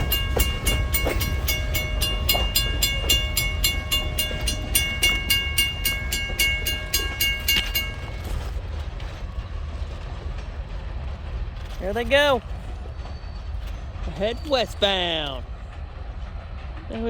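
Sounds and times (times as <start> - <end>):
crossing bell ringing: 0.0 - 9.2
train rumbling past: 0.0 - 17.0.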